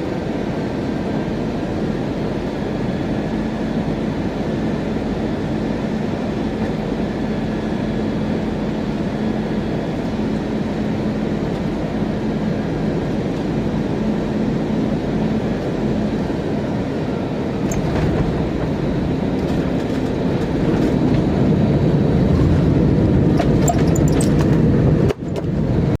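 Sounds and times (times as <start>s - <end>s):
airplane cabin roar: 0.0s - 26.0s
light rattling clicks: 23.4s - 25.5s.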